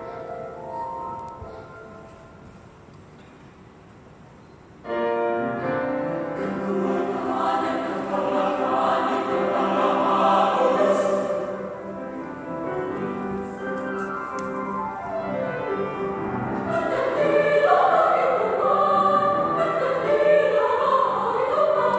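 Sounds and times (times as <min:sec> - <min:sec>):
choir singing sustained chords: 0:04.9 - 0:13.6, 0:14.6 - 0:21.9.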